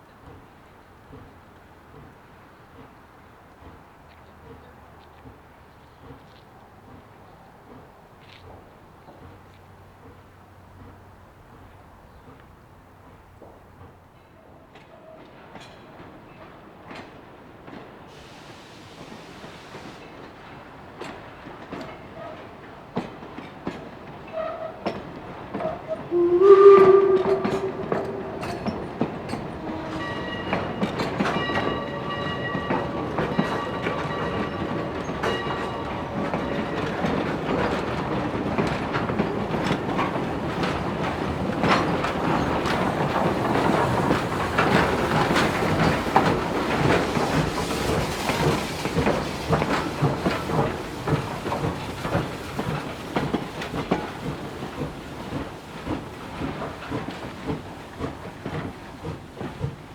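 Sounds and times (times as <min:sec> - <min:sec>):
train wheels clicking over rail joints: 0:00.0 - 0:59.9
steam whistle blast: 0:25.6 - 0:32.9
locomotive bell ringing: 0:26.2 - 0:38.5.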